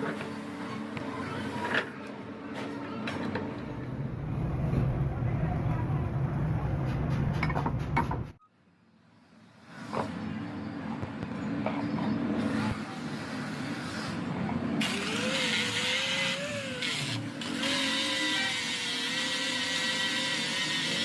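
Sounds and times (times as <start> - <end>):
power tool motor running: 14.8 - 21.0.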